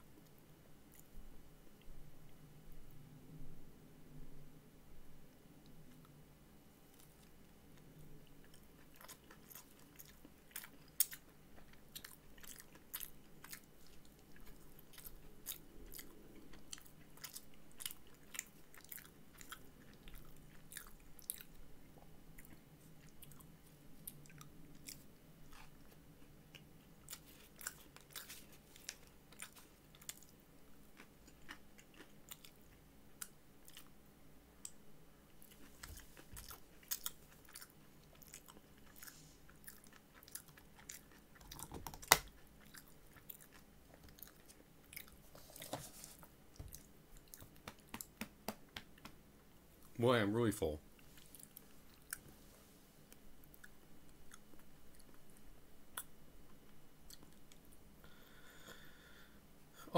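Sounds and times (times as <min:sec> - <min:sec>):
faint low hum: 0:00.0 - 0:59.9
person chewing with mouth smacks: 0:06.9 - 0:34.0, 0:34.6 - 0:49.2, 0:51.0 - 0:52.4, 0:57.1 - 0:57.7.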